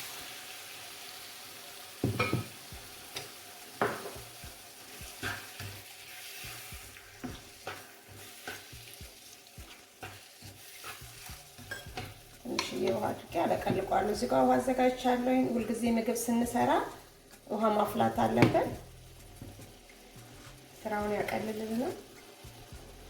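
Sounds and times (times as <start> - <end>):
vegetables sizzling in oil: 0.0 - 23.0
spoon knocking and scraping pot: 2.0 - 4.4, 5.0 - 5.9, 6.5 - 8.9, 9.6 - 14.2, 16.6 - 20.5.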